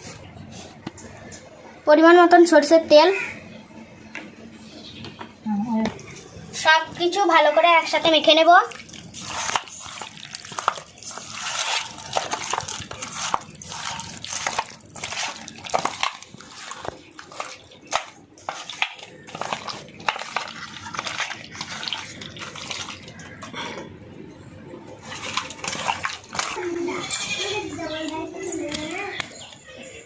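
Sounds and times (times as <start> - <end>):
wet squelching and slapping: 7.9 - 23.6, 25.0 - 29.4.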